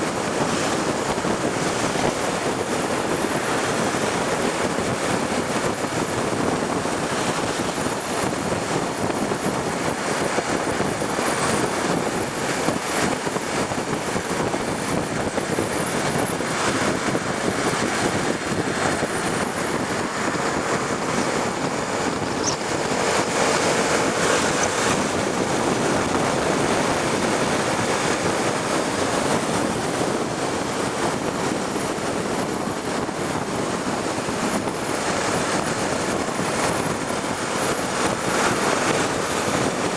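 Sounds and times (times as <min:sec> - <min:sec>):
motorcycle road noise: 0:00.0 - 0:39.9
wind rushing: 0:13.2 - 0:31.9.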